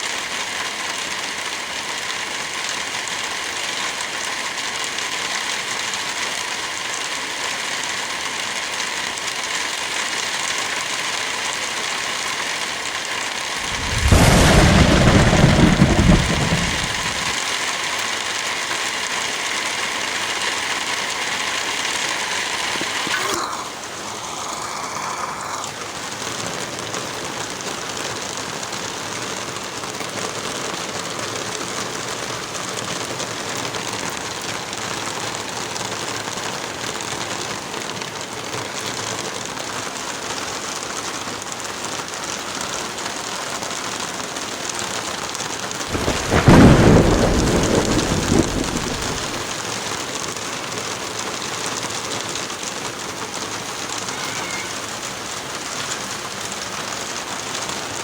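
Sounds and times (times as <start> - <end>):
heavy rain falling: 0.0 - 58.0
thunder clap rumbling: 13.6 - 17.4, 45.9 - 49.5.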